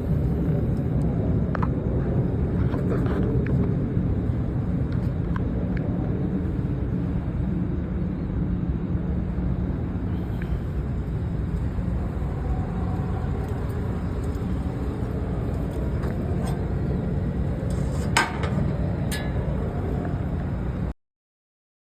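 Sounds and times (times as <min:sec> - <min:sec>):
diesel engine idling: 0:09.7 - 0:20.9.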